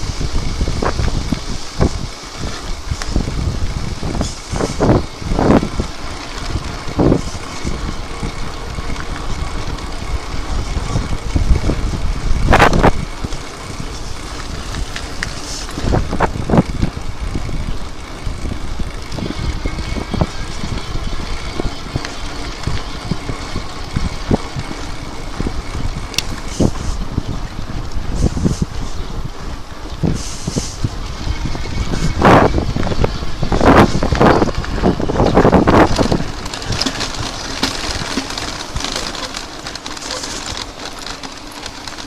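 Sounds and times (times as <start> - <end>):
bike knocking and rattling: 0.0 - 42.0
bike tyres rolling over ground: 0.0 - 42.0
wind buffeting microphone: 0.0 - 42.0.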